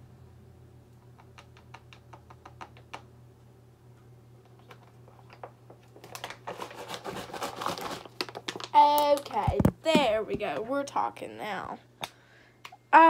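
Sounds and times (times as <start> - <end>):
faint low hum: 0.0 - 13.0
plastic bottle crinkling and clicking: 4.4 - 10.5.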